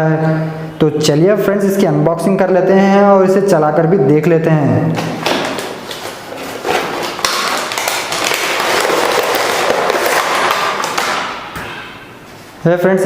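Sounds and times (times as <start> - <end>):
plastic packaging rustling: 5.0 - 11.5.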